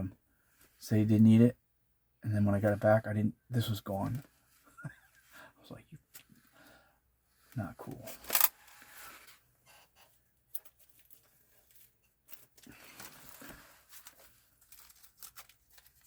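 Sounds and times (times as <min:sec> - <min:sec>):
small parts clicking and rustling: 0:07.9 - 0:16.0.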